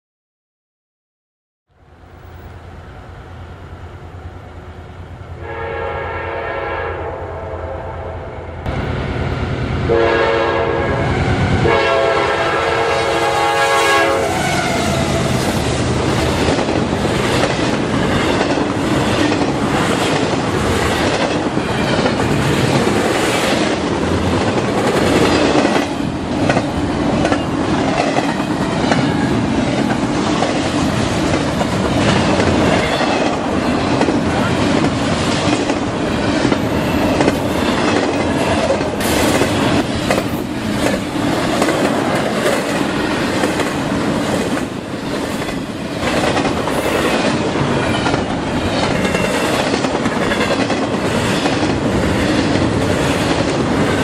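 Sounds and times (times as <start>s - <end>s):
train rumble: 1.8s - 54.0s
locomotive air horn blasts: 5.4s - 8.5s, 9.9s - 15.4s.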